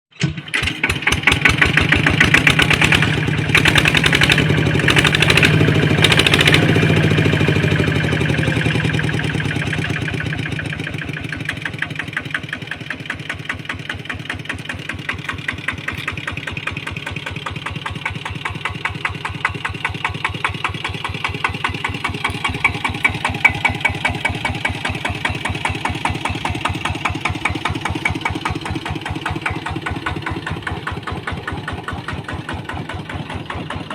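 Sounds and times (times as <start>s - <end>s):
diesel engine chugging: 0.4s - 33.9s.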